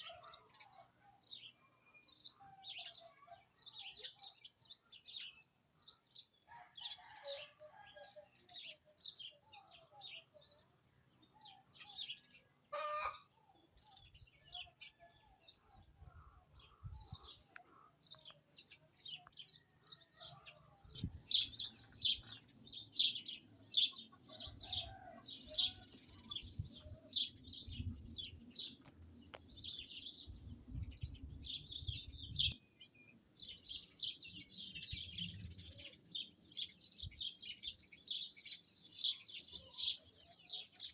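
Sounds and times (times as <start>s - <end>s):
small birds chirping: 0.0s - 40.9s
low rumble of wind: 26.3s - 32.6s.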